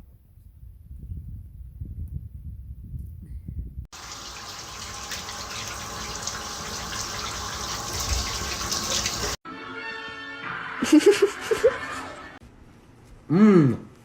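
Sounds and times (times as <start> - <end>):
running water: 3.9 - 9.4.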